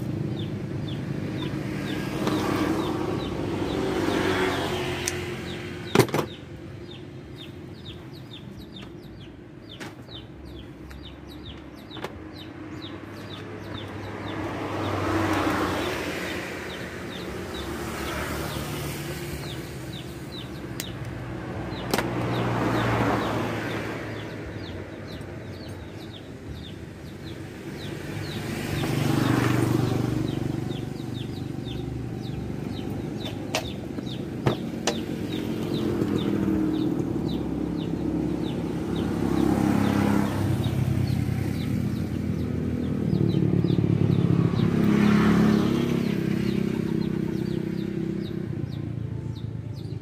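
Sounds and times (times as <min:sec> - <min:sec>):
vehicle passing: 0:00.0 - 0:05.9, 0:06.8 - 0:50.0.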